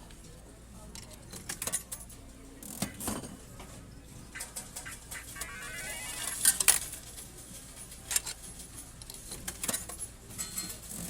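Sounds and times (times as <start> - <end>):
electronic tones: 4.9 - 6.4.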